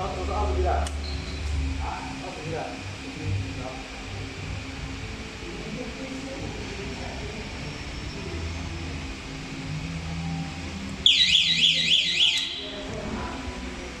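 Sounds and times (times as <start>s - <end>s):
low machine hum: 0.0s - 14.0s
warbling electronic alarm: 11.0s - 12.7s.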